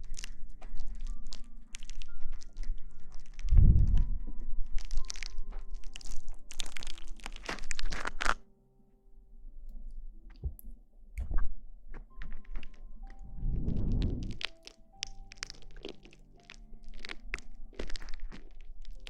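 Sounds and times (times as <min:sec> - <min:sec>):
rustling and crinkling: 0:00.0 - 0:08.4, 0:09.8 - 0:19.0
dull low thump: 0:10.2 - 0:12.2.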